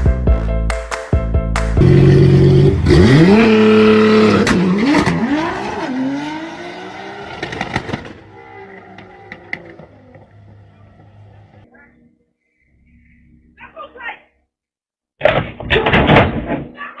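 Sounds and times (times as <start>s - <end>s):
vehicle engine revving: 1.8s - 11.6s.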